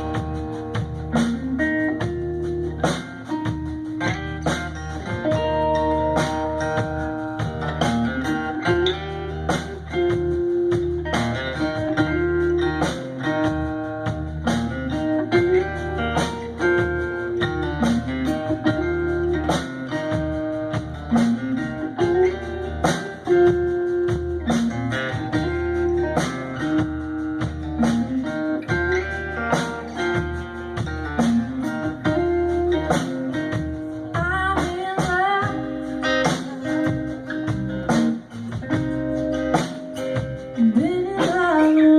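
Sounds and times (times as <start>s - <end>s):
bent guitar notes: 0.0s - 41.9s
drum beat: 0.0s - 41.9s
guitar riff: 0.0s - 41.9s.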